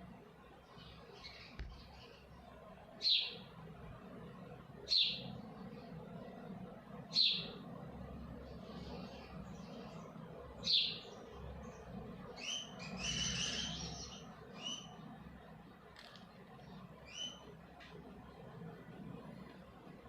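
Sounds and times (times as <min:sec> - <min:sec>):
faint low hum: 0:00.0 - 0:20.0
bird chirping: 0:00.6 - 0:02.3, 0:03.0 - 0:03.5, 0:04.8 - 0:06.0, 0:07.1 - 0:07.6, 0:08.5 - 0:15.2, 0:16.0 - 0:17.6.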